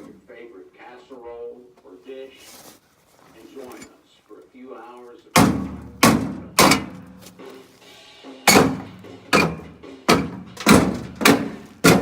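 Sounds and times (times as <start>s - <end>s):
metal parts being struck: 5.4s - 7.4s, 8.4s - 12.0s.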